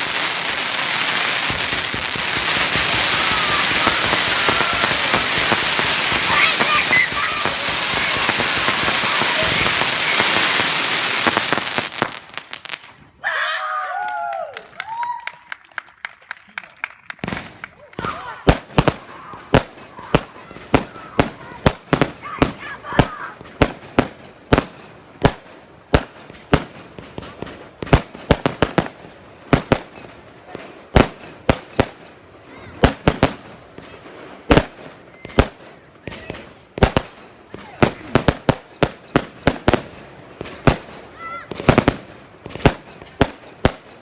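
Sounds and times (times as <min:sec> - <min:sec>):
firework shots bursting with bangs: 0:00.0 - 0:12.8
firework crackling: 0:00.0 - 0:13.2, 0:15.8 - 0:44.0.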